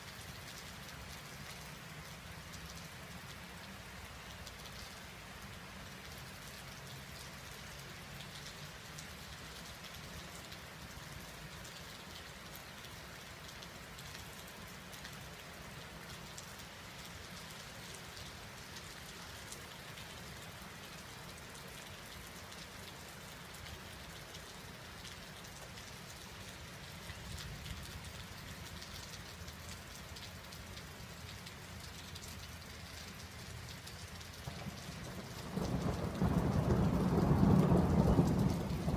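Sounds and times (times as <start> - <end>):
steady rain: 0.0 - 38.9
low thunder rumble: 35.1 - 38.9.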